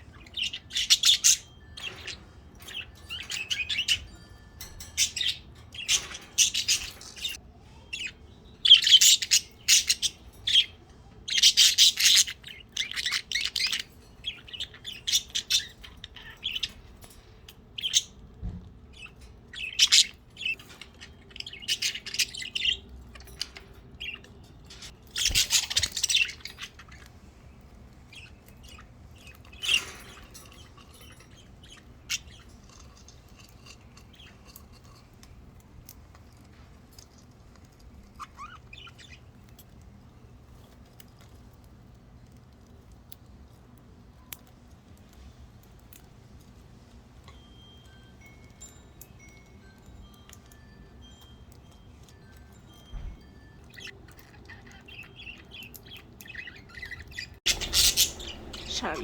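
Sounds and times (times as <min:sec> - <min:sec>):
budgerigars chirping: 0:00.0 - 0:07.4, 0:08.0 - 0:16.8, 0:19.0 - 0:34.7, 0:38.0 - 0:39.4, 0:52.9 - 0:59.0.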